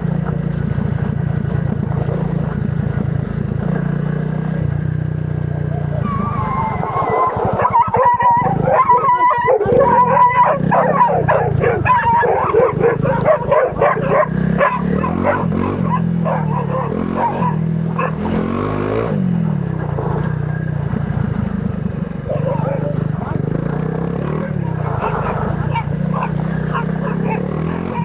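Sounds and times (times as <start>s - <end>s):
motorcycle engine at low revs: 0.0s - 28.0s
dogs barking and yapping: 5.4s - 19.2s, 22.2s - 28.0s.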